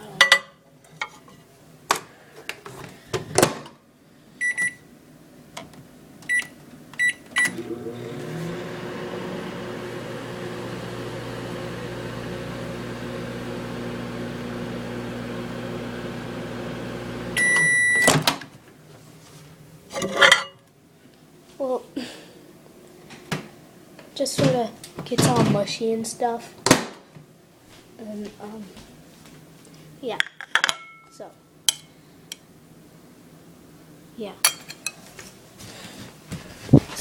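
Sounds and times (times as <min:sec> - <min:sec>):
microwave oven humming: 0:04.3 - 0:19.0
keypad beeps: 0:04.4 - 0:04.8, 0:06.3 - 0:07.5, 0:17.4 - 0:18.1
long beep: 0:17.4 - 0:18.1.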